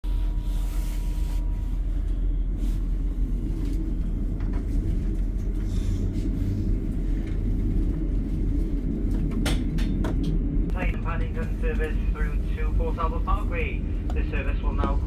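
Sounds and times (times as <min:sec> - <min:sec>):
train carriage rumble: 0:00.0 - 0:15.0.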